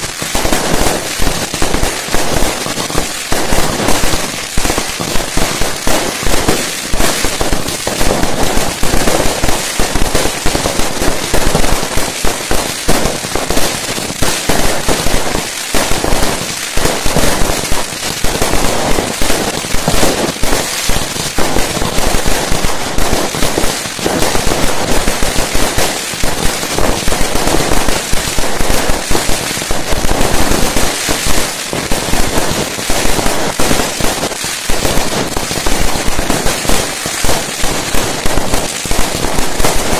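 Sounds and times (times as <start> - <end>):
fireworks banging and crackling: 0.0 - 39.9.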